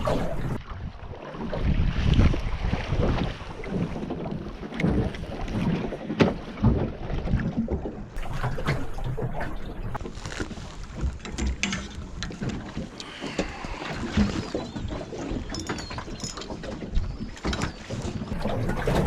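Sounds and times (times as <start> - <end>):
wind buffeting microphone: 0.0 - 5.9
fishing gear knocks and clicks: 10.0 - 18.2.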